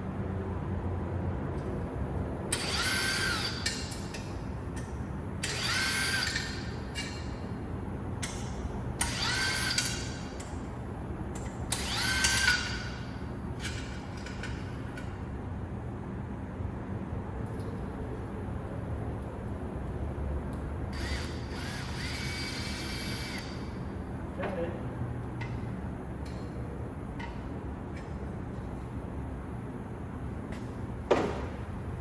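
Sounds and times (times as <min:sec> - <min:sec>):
power drill spinning: 0:21.0 - 0:23.5.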